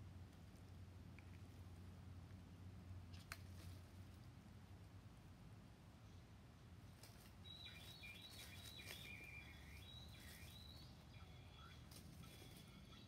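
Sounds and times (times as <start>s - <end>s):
low background hum: 0.0s - 13.0s
songbird whistling: 7.4s - 11.8s.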